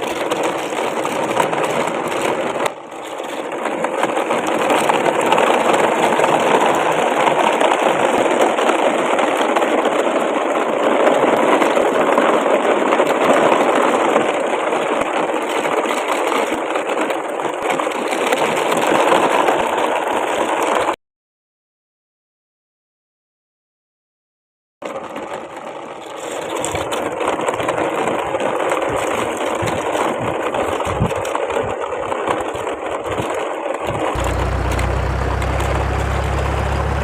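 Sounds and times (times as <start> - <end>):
small motor whirring: 34.2 - 37.0.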